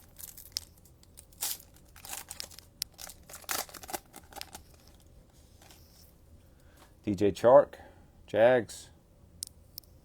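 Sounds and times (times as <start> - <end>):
plastic wrapper tearing and crinkling: 1.4 - 5.0.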